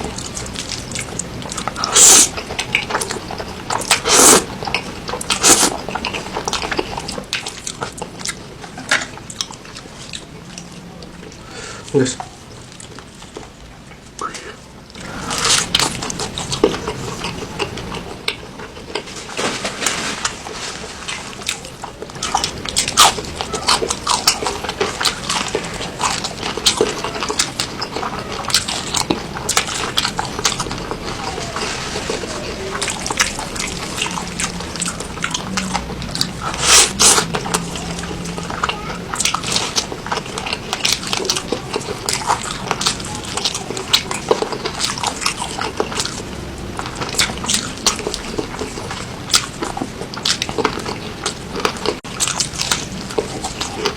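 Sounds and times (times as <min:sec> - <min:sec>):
loud slurp: 0:01.5 - 0:02.4, 0:03.8 - 0:04.6, 0:05.3 - 0:05.8, 0:29.4 - 0:41.3
wet chewing and lip smacks: 0:20.4 - 0:53.9.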